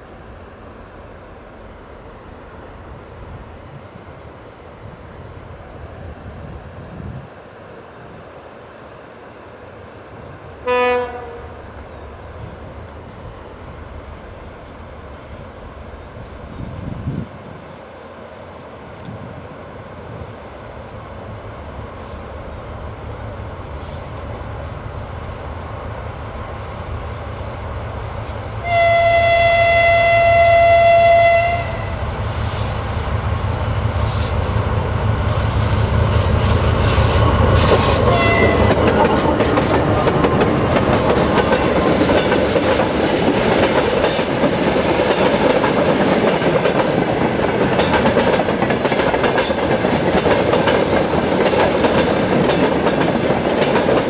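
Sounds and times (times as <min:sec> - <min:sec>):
diesel locomotive engine rumble: 0:00.0 - 0:54.0
locomotive horn blast: 0:10.6 - 0:11.6, 0:28.6 - 0:32.1, 0:37.9 - 0:38.8.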